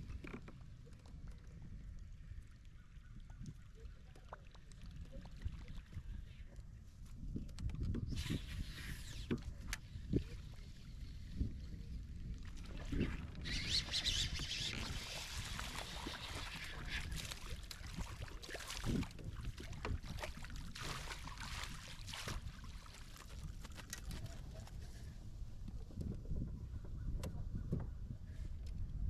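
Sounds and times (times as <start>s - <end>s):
wind rumble on microphone: 0.0s - 29.0s
water splashing around kayak: 8.0s - 25.0s.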